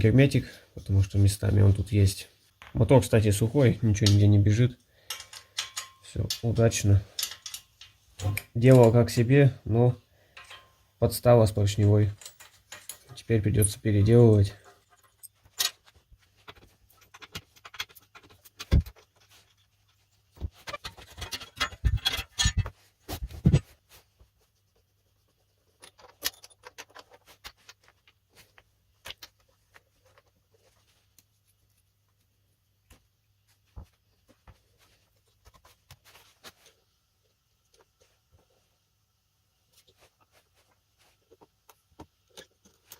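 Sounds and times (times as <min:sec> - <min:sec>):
metal parts and tools clinking: 0:02.6 - 0:09.5, 0:10.3 - 0:23.8, 0:25.7 - 0:31.2
metallic clattering: 0:05.0 - 0:09.4, 0:10.4 - 0:10.8, 0:11.7 - 0:23.7.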